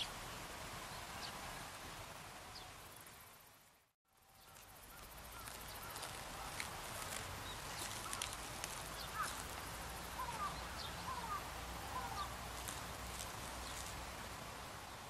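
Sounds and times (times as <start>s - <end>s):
steady background hiss: 0.0s - 15.0s
distant bird chirping: 4.4s - 14.0s
grass leaves clicking when handled: 5.4s - 10.5s, 12.6s - 14.0s.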